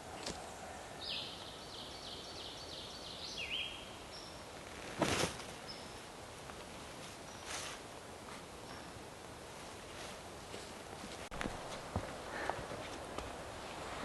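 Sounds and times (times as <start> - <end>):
songbird singing high notes: 1.0 - 4.4.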